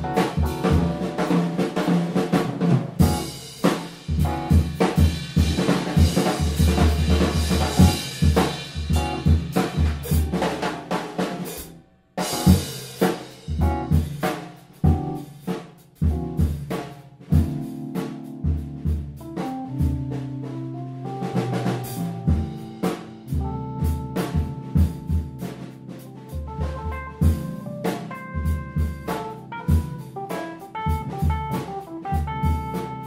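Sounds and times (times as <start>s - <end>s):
bass drum: 0.0s - 33.0s
snare and rimshot hits: 0.2s - 15.7s
live band playing: 26.9s - 33.0s.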